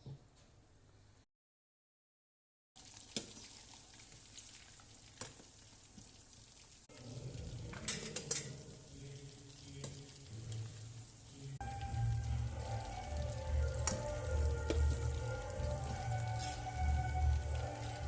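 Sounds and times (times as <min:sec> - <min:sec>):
meat sizzling in hot oil: 0:02.8 - 0:18.0
utensil clinking against pan: 0:07.8 - 0:08.7.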